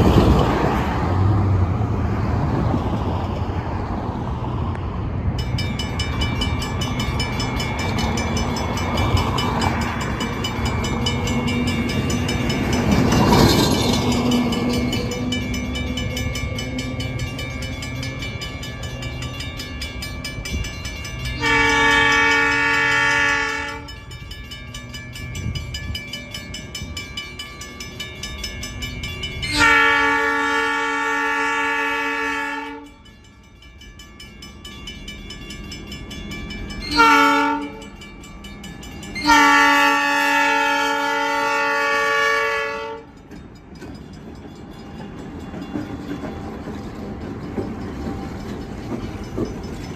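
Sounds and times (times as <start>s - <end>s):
locomotive air horn blasts: 21.4s - 24.0s, 29.4s - 33.0s, 36.9s - 37.9s, 39.2s - 43.2s.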